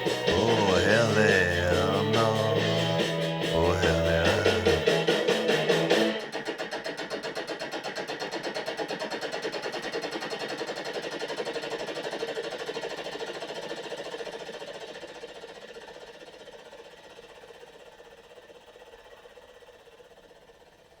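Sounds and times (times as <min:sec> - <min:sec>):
helicopter rotor chopping: 0:00.0 - 0:05.0.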